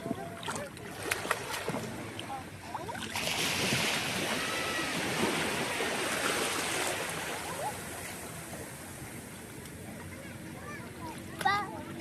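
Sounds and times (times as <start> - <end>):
sea surf washing in: 3.0 - 9.5.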